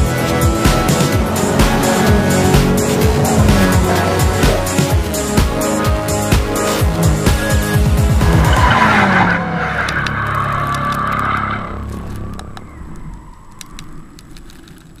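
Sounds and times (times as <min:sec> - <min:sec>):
car engine sweeping past: 0:00.2 - 0:05.3, 0:08.1 - 0:11.8.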